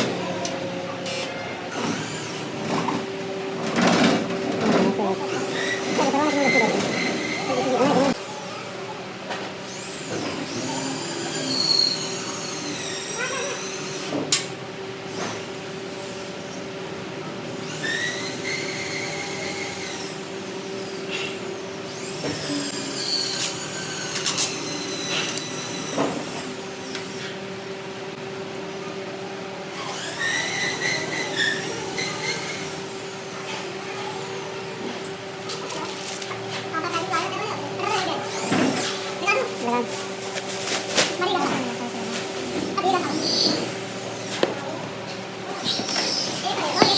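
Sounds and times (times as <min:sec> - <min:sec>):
machinery humming: 0:00.0 - 0:08.2.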